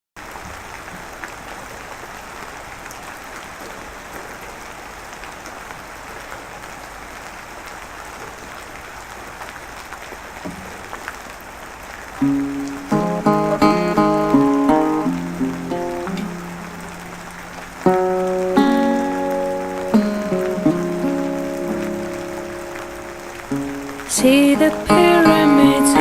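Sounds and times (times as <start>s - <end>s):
faint raindrop ticks: 0.2s - 26.0s
steady rain hiss: 0.2s - 26.0s
music: 12.2s - 26.0s.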